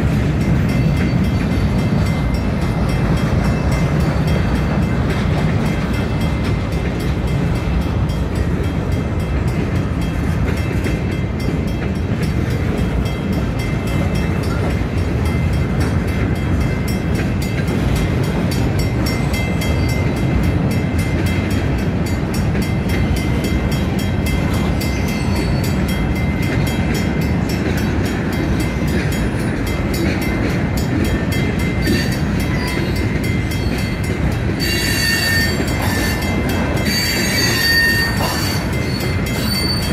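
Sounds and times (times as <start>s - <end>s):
steel wheels rumbling on rails: 0.0s - 39.9s
wheels clicking over rail joints: 0.0s - 39.9s
high-pitched wheel squeal: 34.6s - 39.9s.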